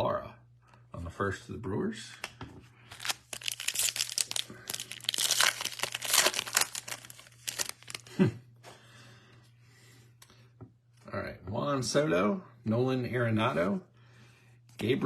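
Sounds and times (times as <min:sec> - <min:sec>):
foil wrapper tearing and crinkling: 0:02.9 - 0:08.2.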